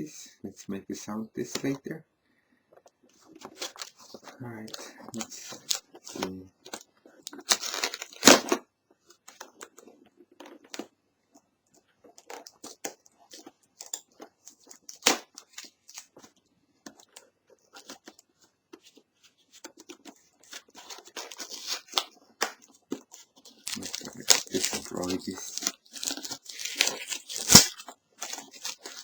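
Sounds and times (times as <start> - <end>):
packaging rustling and tearing: 3.2 - 8.6, 12.2 - 18.2, 18.8 - 29.0.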